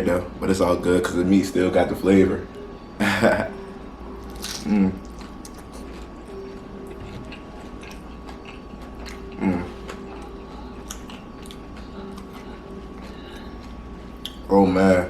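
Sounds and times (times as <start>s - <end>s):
person chewing food: 4.2s - 14.5s
person humming: 4.6s - 5.2s, 9.2s - 14.0s
wet crackly mouth sounds: 6.9s - 14.5s.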